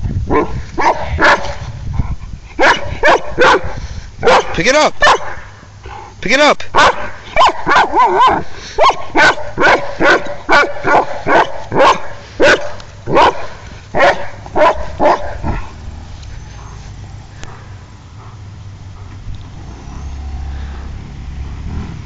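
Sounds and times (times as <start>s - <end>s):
dog barking: 0.3s - 1.6s, 2.6s - 5.5s, 6.7s - 15.8s.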